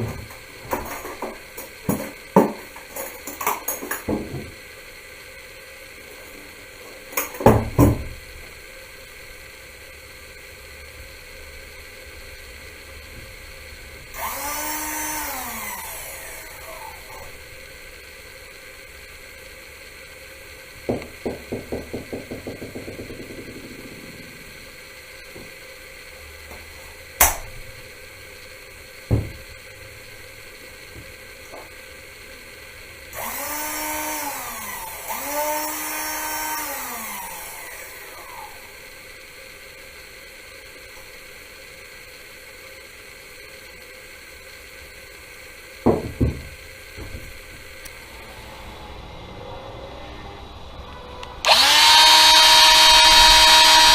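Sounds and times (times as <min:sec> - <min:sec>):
tool handling clicks and knocks: 0:00.0 - 0:04.5
angle grinder whining: 0:11.8 - 0:42.7, 0:45.9 - 0:53.9.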